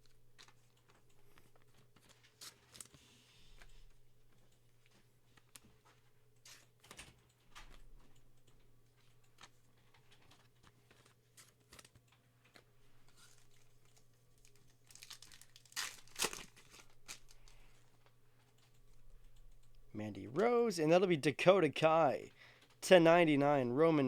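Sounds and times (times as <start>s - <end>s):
foil wrapper tearing and crinkling: 14.4s - 17.7s.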